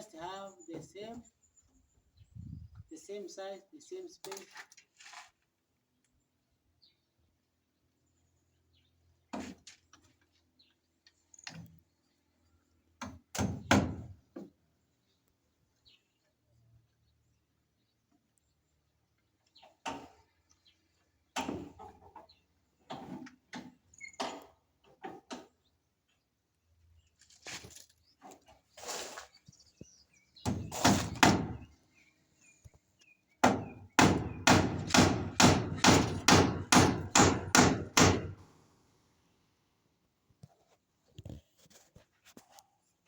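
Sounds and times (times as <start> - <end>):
hand tool knocks and scrapes: 9.3 - 9.9.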